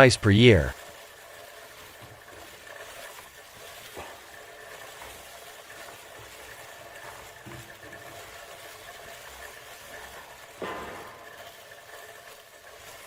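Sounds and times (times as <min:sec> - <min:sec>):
faint machine hum: 0:00.0 - 0:13.0.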